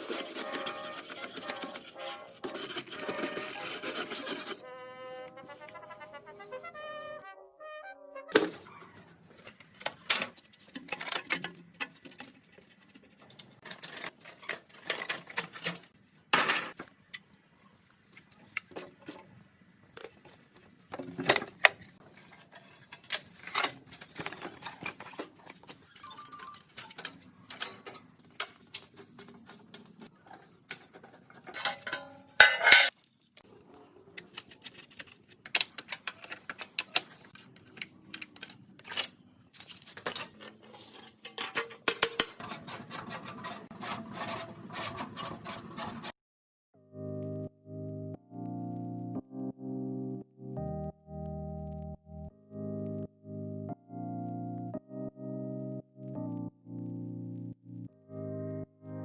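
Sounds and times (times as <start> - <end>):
metal tools clinking: 31.4 - 33.0.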